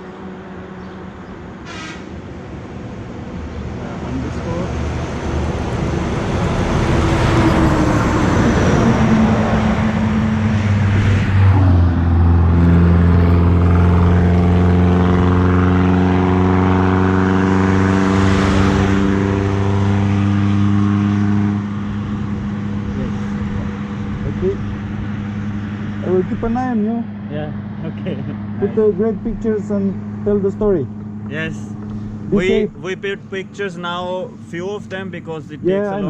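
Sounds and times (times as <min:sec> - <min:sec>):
engine drone: 0:00.0 - 0:36.0
road noise rushing: 0:00.0 - 0:36.0.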